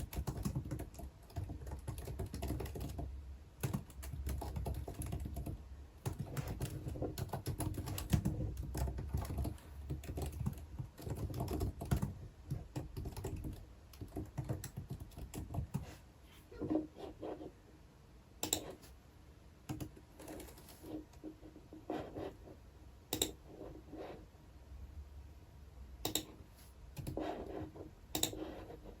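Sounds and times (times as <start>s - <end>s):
typing on computer keyboard: 0.0s - 15.9s, 18.4s - 18.8s, 19.7s - 20.8s, 23.1s - 23.4s, 26.0s - 26.3s, 27.0s - 27.2s, 28.1s - 28.5s.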